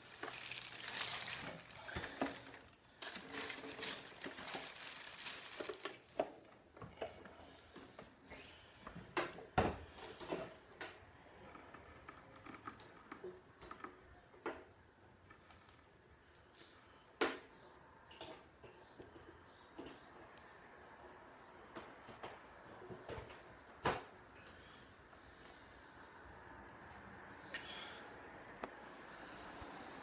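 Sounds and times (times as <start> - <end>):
packaging crinkling and rustling: 0.0 - 6.4.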